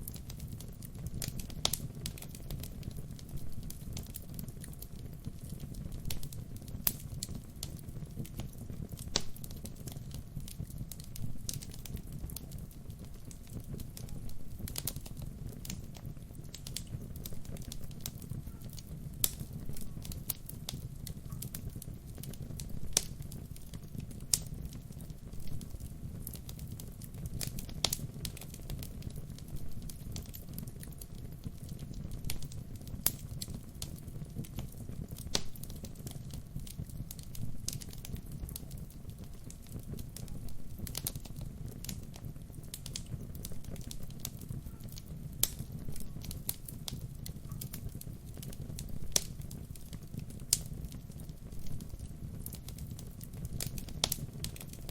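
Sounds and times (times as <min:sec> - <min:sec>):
burning wood crackling and popping: 0:00.0 - 0:54.9
wood fire low rumble: 0:00.0 - 0:54.9.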